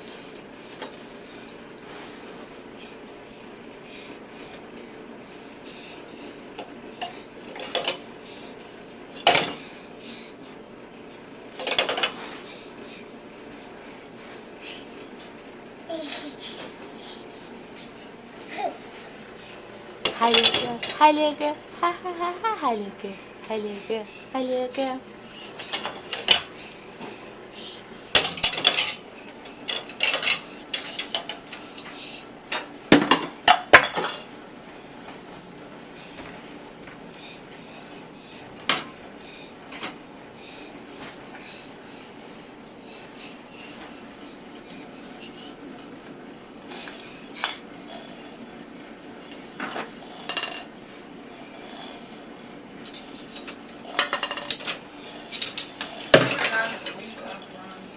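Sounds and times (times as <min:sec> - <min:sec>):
dishes and cutlery clattering: 0:28.2 - 0:29.0, 0:52.9 - 0:57.5.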